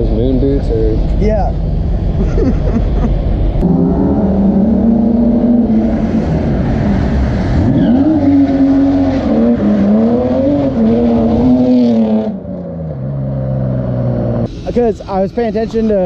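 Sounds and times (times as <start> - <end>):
tyre and road noise: 0.0 - 16.0
car engine revving hard: 3.6 - 14.5.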